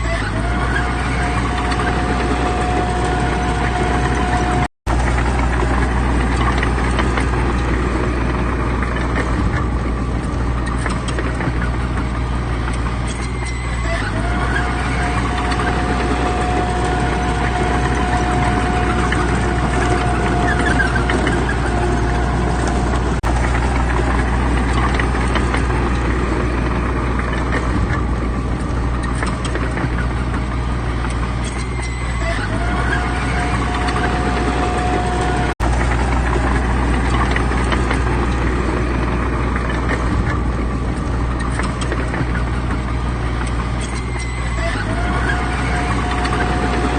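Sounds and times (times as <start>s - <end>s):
diesel earthmoving engines rumbling: 0.0s - 46.9s
machine whine: 0.0s - 46.9s.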